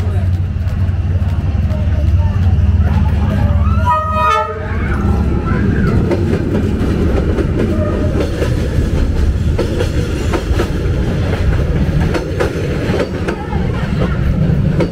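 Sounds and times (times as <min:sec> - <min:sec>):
wheels rumbling on rail: 0:00.0 - 0:14.9
wheels clacking over rail joints: 0:04.9 - 0:14.9.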